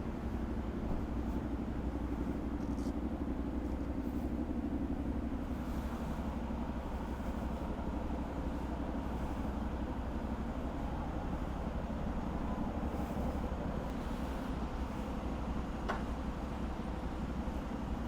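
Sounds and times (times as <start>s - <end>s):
motorcycle engine running steadily: 0.0s - 18.0s.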